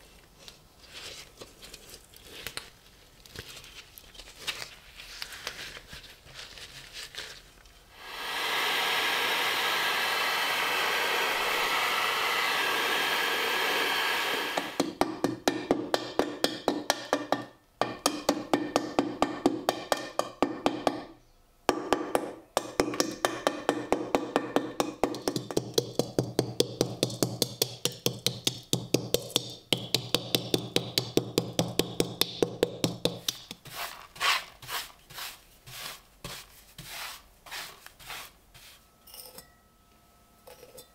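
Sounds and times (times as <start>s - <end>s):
steady hiss: 7.9s - 14.8s
rubbing strokes on rusty steel: 33.6s - 38.8s.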